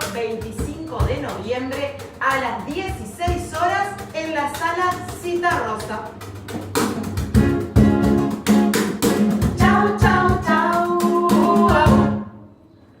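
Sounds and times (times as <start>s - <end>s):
strummed acoustic guitar: 6.4s - 12.2s
person singing: 9.5s - 12.2s.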